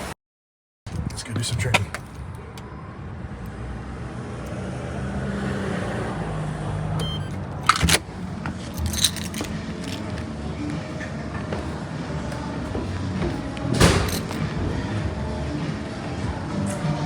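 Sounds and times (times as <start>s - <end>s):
car engine hum: 2.0s - 17.0s
metallic jingling clicks: 7.3s - 10.2s, 13.8s - 14.5s.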